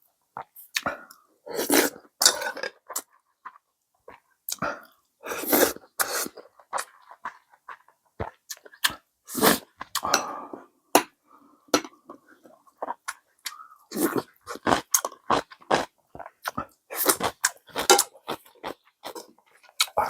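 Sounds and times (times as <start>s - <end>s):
person chewing and slurping: 0.5s - 10.5s, 12.4s - 20.0s.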